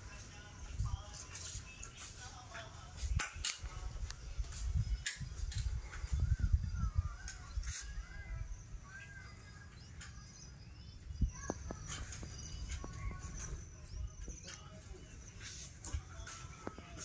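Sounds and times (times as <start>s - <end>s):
birds whistling calls: 4.1s - 17.0s.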